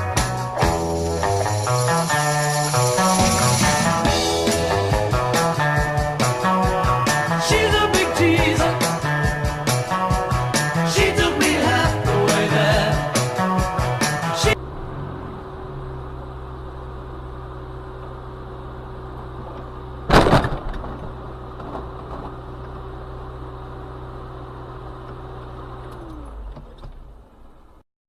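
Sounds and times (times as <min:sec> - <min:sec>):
car engine humming: 0:00.0 - 0:27.8
sharp loud bang: 0:20.1 - 0:21.0.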